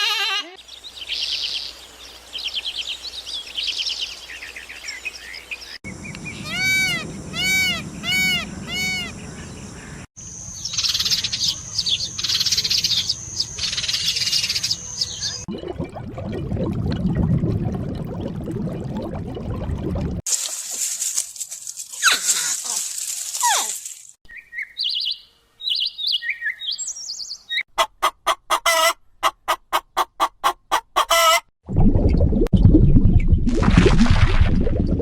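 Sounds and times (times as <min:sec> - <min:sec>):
dense bird chirping: 0:00.6 - 0:15.5
rapid high bird chirping trills: 0:05.9 - 0:10.0
arching bird calls: 0:05.9 - 0:10.1.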